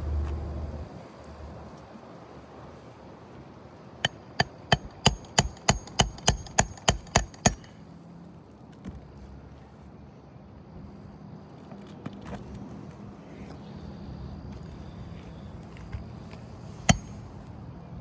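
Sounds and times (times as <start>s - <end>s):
hammer striking nails: 4.0s - 7.8s, 16.8s - 17.2s.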